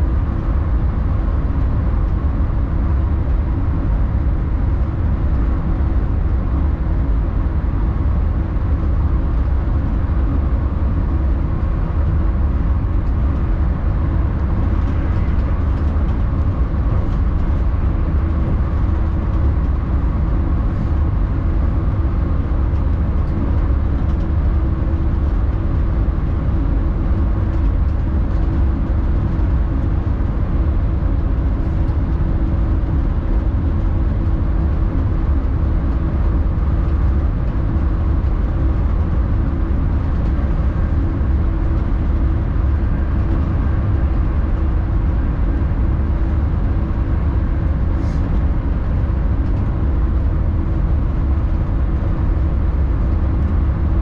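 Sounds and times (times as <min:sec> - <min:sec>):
constant electric hum: 0:00.0 - 0:54.0
train wheels rumbling on rail: 0:00.0 - 0:54.0.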